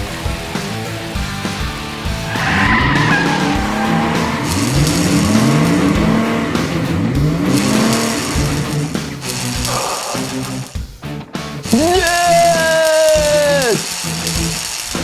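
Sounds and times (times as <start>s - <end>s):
background music: 0.0s - 15.0s
race car engine revving: 0.5s - 10.9s, 11.5s - 15.0s
tyre squeal: 2.3s - 6.3s.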